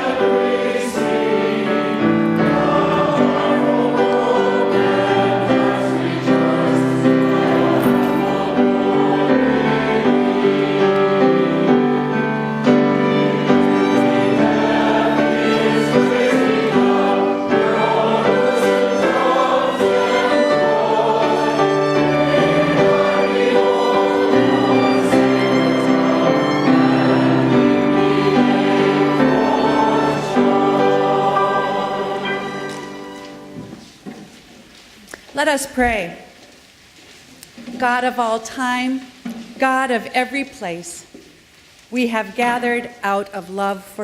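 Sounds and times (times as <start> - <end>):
choir singing a hymn: 0.0 - 33.9
instrumental accompaniment: 0.0 - 34.4.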